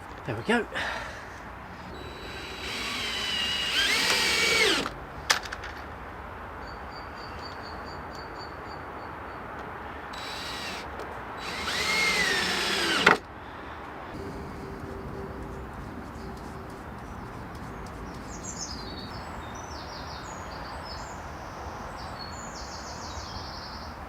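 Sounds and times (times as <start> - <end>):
power drill driving screws: 2.0 - 4.9, 10.2 - 10.8, 11.4 - 13.2.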